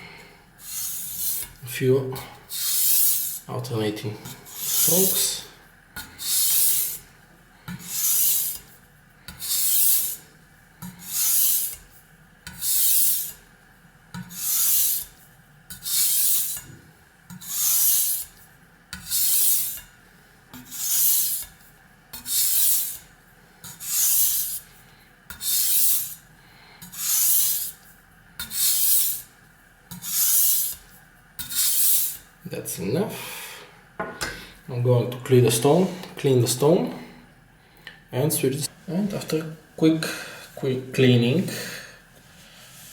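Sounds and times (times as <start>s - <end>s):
knife scraping on a whetstone: 0.6s - 1.6s, 2.5s - 3.5s, 4.2s - 5.3s, 6.0s - 7.0s, 7.8s - 8.7s, 9.3s - 10.2s, 10.8s - 11.9s, 12.5s - 13.4s, 14.2s - 16.7s, 17.3s - 19.9s, 20.6s - 24.7s, 25.3s - 26.2s, 26.8s - 29.3s, 29.9s - 32.2s.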